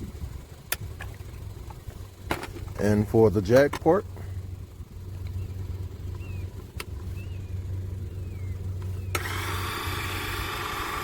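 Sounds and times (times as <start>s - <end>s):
low hum: 0.0s - 11.0s
hydraulic pump motor whining: 9.1s - 11.0s.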